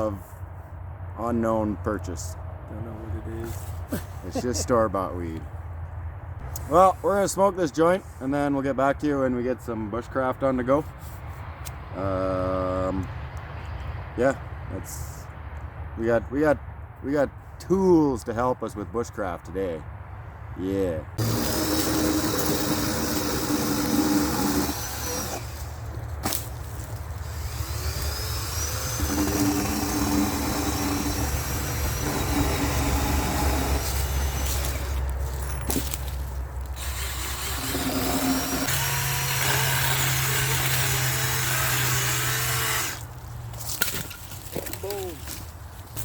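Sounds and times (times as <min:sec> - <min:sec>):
power tools running: 0:21.2 - 0:35.9, 0:36.7 - 0:43.0.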